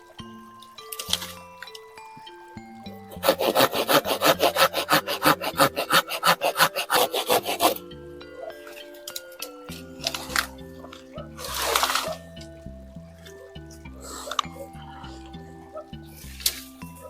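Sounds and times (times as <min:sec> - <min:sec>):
saw cutting through wood: 0:03.1 - 0:07.8.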